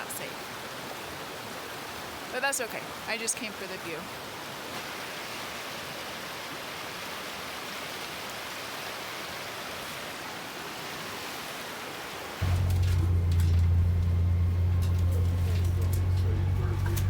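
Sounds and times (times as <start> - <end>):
river rushing: 0.0 - 17.0
loud low hum: 12.4 - 17.0.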